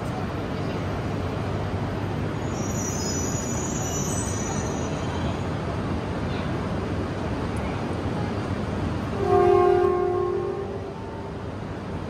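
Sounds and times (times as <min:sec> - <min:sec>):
train low rumble: 0:00.0 - 0:12.0
high thin wheel squeal: 0:02.4 - 0:05.2.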